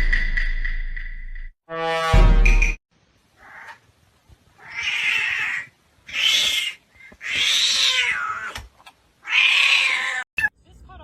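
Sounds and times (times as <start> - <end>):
cat yowling: 4.6 - 8.6, 9.2 - 10.3.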